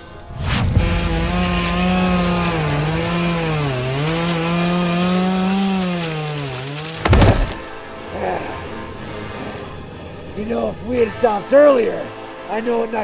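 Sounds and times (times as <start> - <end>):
chainsaw running: 1.9 - 7.7.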